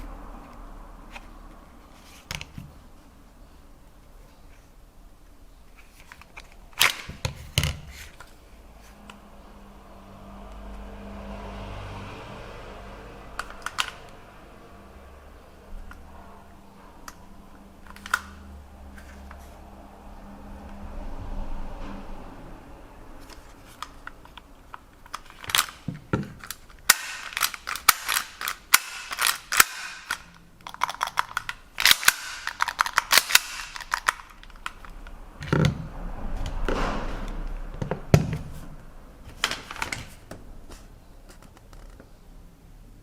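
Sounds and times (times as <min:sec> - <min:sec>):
sharp clicks of small hard parts: 0:13.4 - 0:14.2, 0:23.8 - 0:35.6.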